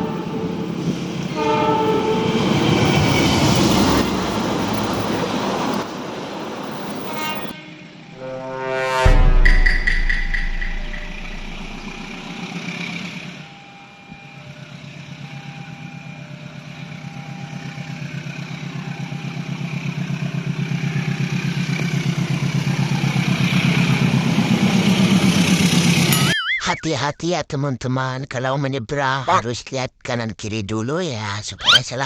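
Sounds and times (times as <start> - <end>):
low rumble: 8.2 - 12.3
vehicle engine throbbing: 8.2 - 12.8.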